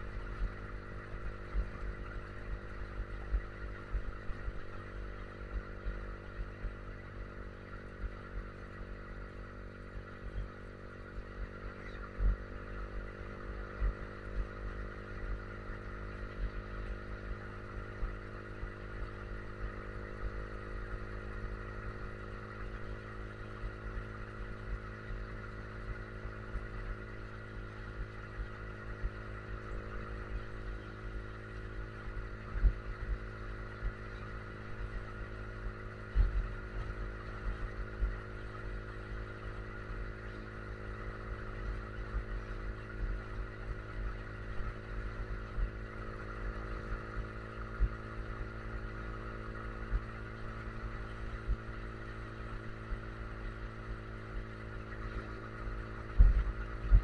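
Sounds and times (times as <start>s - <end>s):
motorcycle engine cruising: 0.0s - 57.0s
wind rumbling on microphone: 55.0s - 57.0s.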